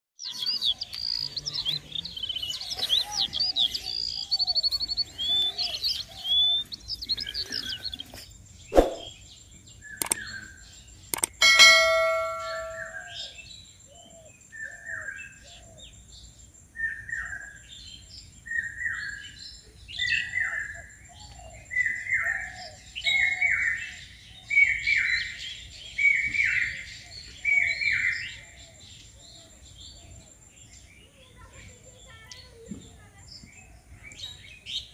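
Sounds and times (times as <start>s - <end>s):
bird calling: 0.2s - 9.2s, 11.2s - 14.8s
click and bell-like chime: 11.2s - 13.2s.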